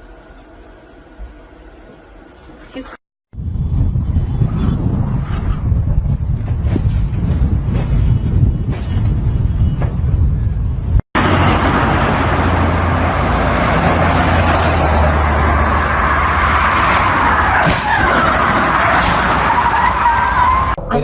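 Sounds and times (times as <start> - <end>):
car engine hum: 11.2 - 21.0.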